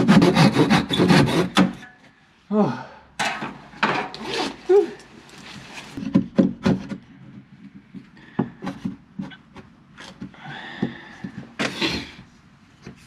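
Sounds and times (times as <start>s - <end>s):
rasping scrape on wood: 0.0s - 1.8s.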